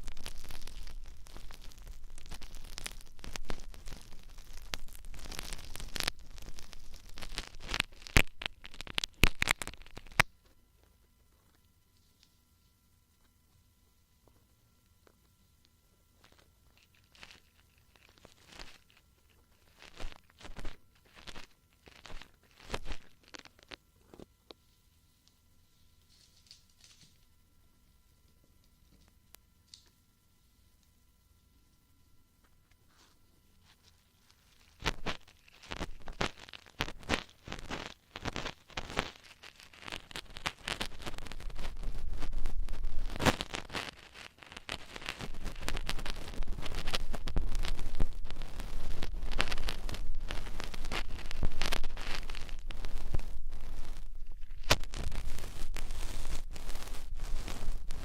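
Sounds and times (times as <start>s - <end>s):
scratchy crackles: 0.0s - 13.5s, 14.2s - 27.4s, 32.4s - 58.0s
ear-cleaning tool scratching: 32.9s - 58.0s.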